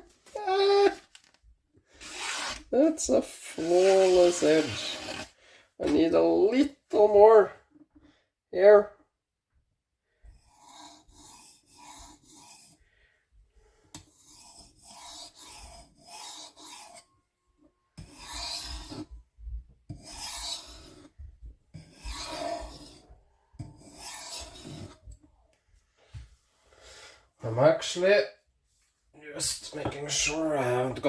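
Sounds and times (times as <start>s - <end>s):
knife scraping on sharpening plate: 14.2s - 17.1s, 18.0s - 19.1s, 20.0s - 21.1s, 21.8s - 23.0s, 23.7s - 25.0s.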